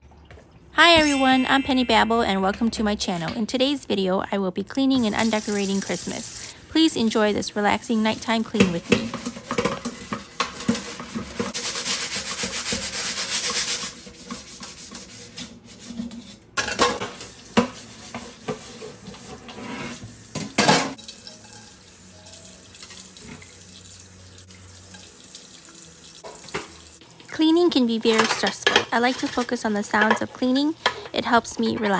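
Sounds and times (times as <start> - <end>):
tap water running into sink: 20.4 - 27.4.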